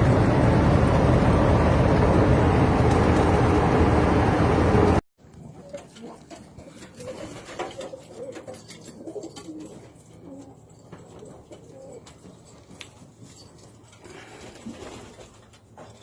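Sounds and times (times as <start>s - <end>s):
pigeons cooing: 5.5s - 12.3s.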